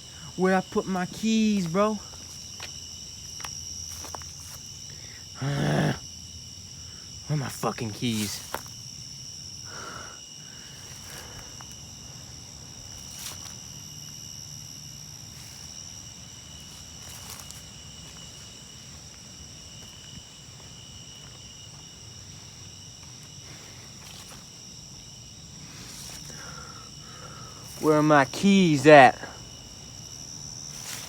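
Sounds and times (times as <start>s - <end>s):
high-pitched insect trilling: 0.0s - 31.0s
faint footsteps: 1.5s - 4.8s, 8.1s - 8.9s, 10.6s - 14.4s, 15.2s - 31.0s.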